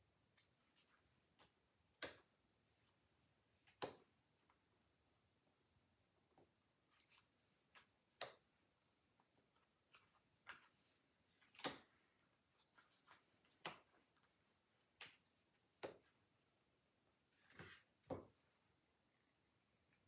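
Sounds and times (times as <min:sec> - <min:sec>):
cards being flipped: 0:09.8 - 0:12.0.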